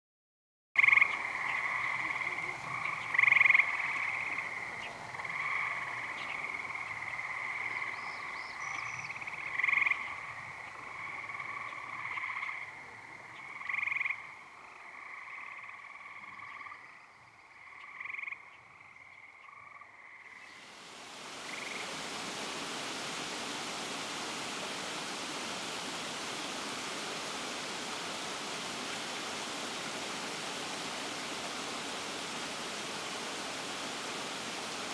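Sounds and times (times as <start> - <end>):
flowing water rushing: 0.8 - 15.0, 20.4 - 34.9
frogs trilling chorus: 0.8 - 22.1.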